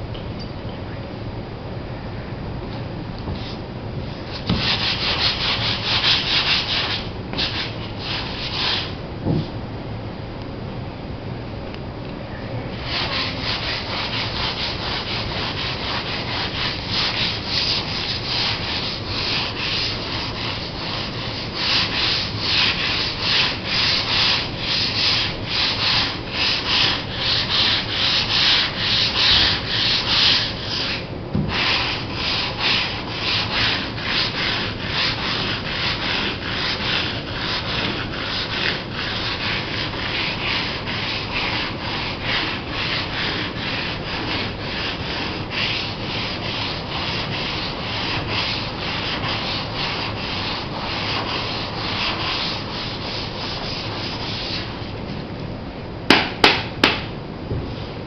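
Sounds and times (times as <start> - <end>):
sandpaper rubbing fiberglass: 4.2 - 9.0, 12.8 - 54.9.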